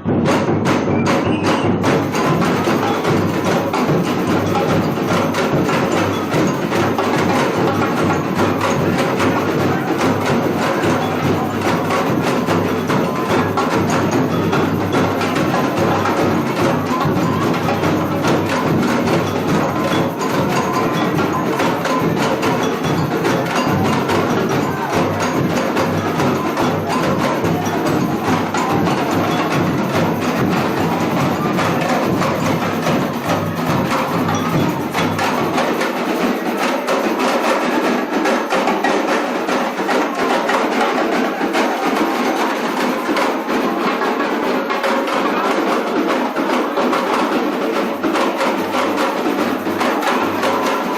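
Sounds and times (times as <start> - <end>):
drum and percussion ensemble: 0.0 - 50.9.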